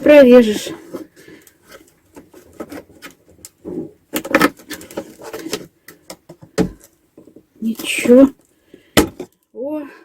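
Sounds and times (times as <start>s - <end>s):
knife cutting and scraping lid: 0.8s - 5.7s.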